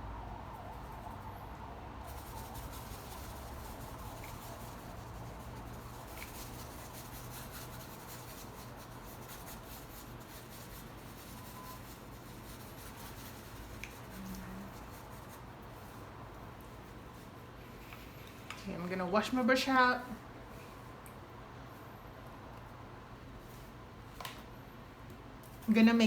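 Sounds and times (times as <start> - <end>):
low room hum: 0.0 - 26.0
paintbrush strokes rubbing: 2.0 - 17.9.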